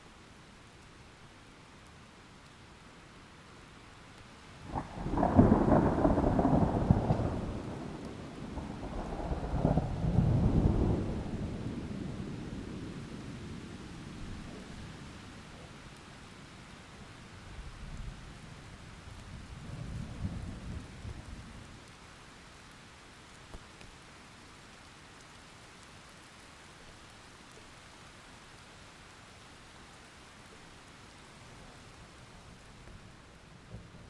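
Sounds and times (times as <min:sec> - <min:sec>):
steady rain: 0:00.0 - 0:34.0
thunder rumbling: 0:04.7 - 0:12.8.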